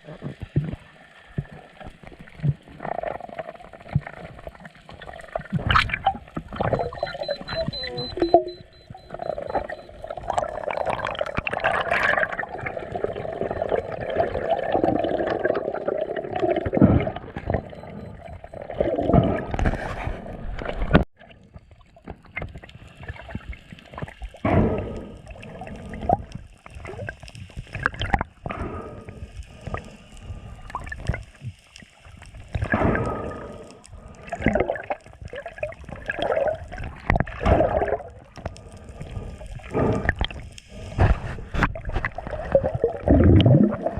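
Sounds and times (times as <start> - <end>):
underwater water gurgling: 0.0 - 43.9.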